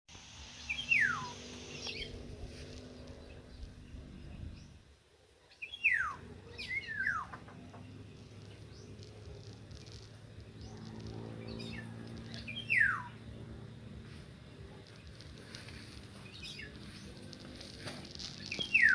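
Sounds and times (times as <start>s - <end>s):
faint low hum: 0.4s - 18.9s
bird whistling downward: 0.6s - 2.1s, 5.6s - 7.4s, 12.4s - 13.2s, 18.5s - 18.9s.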